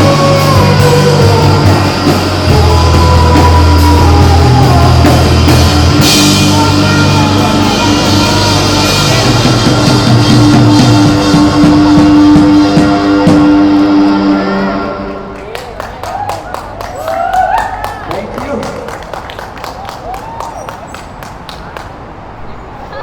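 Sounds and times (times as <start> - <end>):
rock band playing: 0.0 - 14.9.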